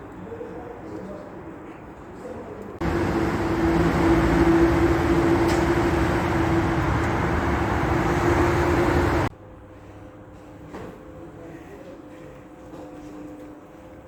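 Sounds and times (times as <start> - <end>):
vehicle running with hum: 2.8 - 9.3.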